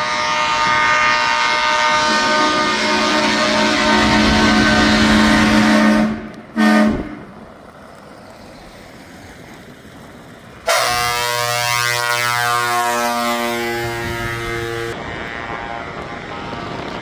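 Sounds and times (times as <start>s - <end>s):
truck air horns: 0.0s - 7.3s, 10.6s - 16.6s
truck engine noise: 0.0s - 17.0s.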